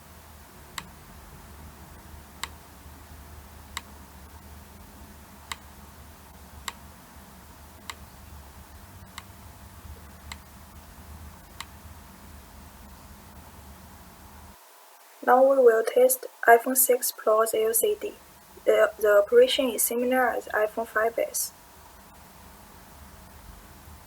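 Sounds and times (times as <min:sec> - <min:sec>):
low steady hum: 0:00.0 - 0:24.0
faint sharp clicks: 0:07.8 - 0:08.0, 0:10.2 - 0:10.5, 0:11.5 - 0:11.8.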